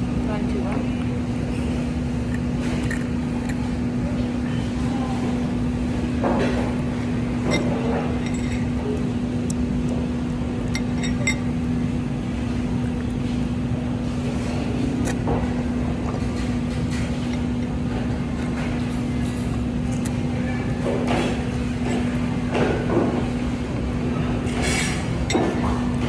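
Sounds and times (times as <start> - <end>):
low background hum: 0.0 - 26.0
tableware clinking: 7.4 - 9.0, 10.7 - 11.5, 24.5 - 25.8.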